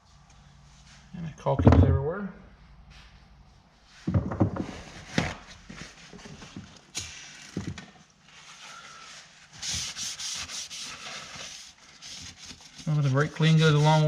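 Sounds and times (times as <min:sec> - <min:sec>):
rag scrubbing metal frame: 0:12.0 - 0:14.0.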